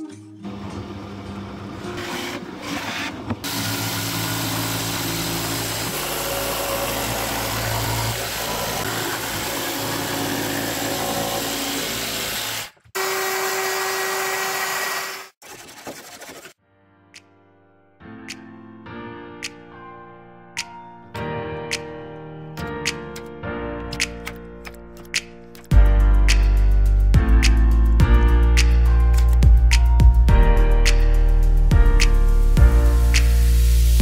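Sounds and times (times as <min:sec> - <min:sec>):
power tool motor whine: 0:03.4 - 0:15.3.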